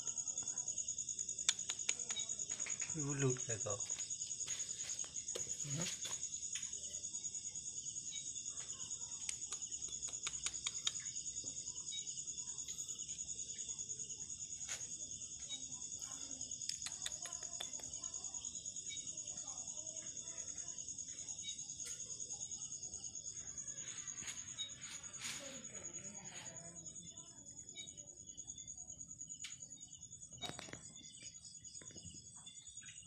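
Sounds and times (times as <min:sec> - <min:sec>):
insects trilling: 0:00.0 - 0:33.0
faint clicks: 0:09.2 - 0:11.1.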